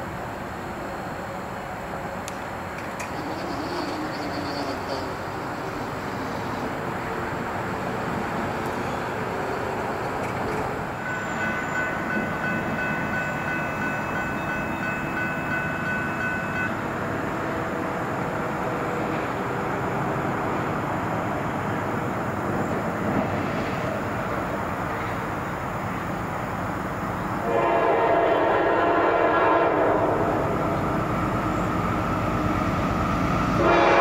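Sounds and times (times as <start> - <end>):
train rumble: 0.0 - 34.0
crossing warning bell ringing: 10.9 - 17.5.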